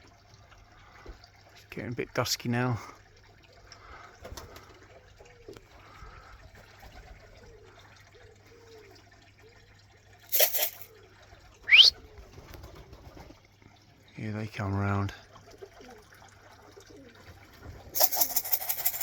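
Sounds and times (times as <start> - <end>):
pigeons cooing: 3.4 - 13.4, 15.3 - 19.0.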